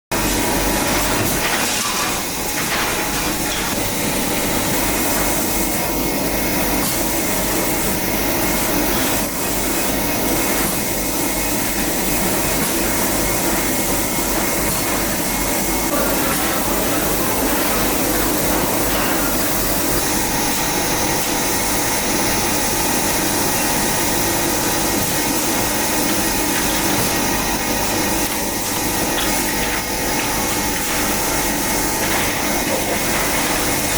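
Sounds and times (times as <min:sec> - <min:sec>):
whirring machinery hum: 0:00.1 - 0:33.9.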